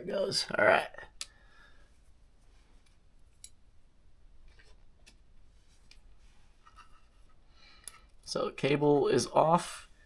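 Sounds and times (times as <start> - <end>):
tweezers clicking and tapping: 3.3 - 3.6.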